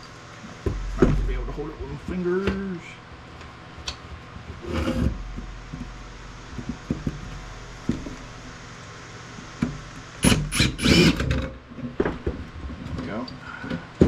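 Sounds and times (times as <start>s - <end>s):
steady low hum: 0.0s - 14.0s
loud rasping bursts: 10.2s - 11.5s.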